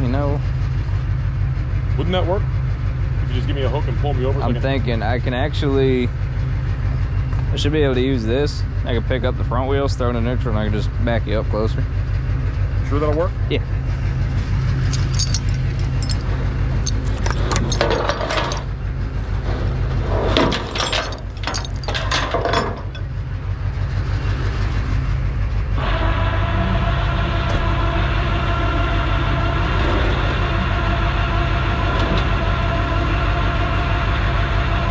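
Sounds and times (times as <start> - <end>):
metal clinks and rattles: 14.8 - 18.9, 20.4 - 23.2.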